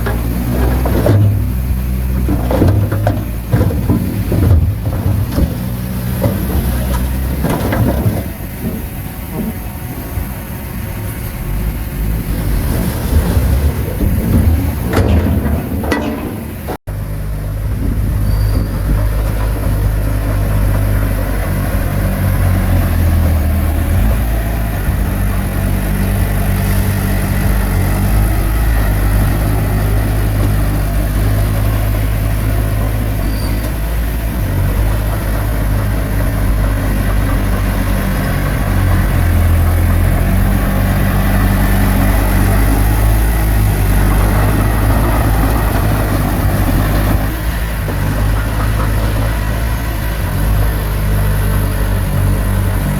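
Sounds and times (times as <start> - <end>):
bulldozer diesel engine running: 0.0 - 52.9.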